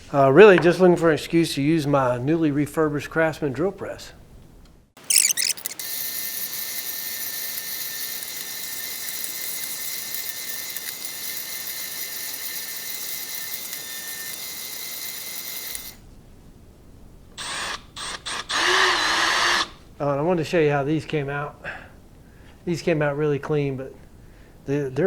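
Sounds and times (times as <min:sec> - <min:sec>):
drill press cleaning screws hissing: 0:05.1 - 0:16.0.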